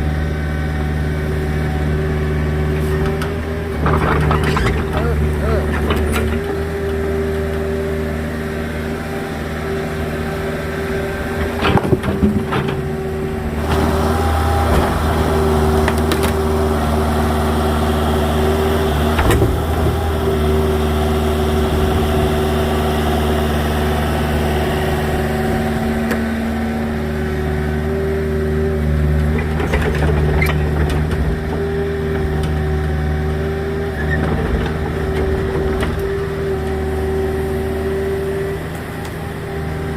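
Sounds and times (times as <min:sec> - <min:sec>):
excavator engine running: 0:00.0 - 0:39.9
sharp knocks and clatters: 0:11.4 - 0:13.1.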